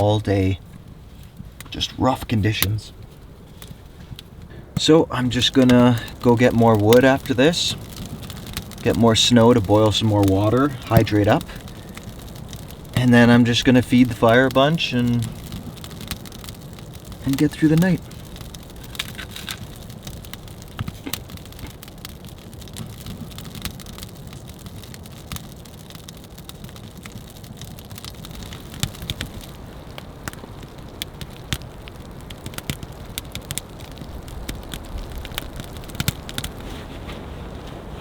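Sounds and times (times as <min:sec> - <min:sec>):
campfire crackling and popping: 0:00.0 - 0:38.0
rain patter: 0:00.0 - 0:38.0.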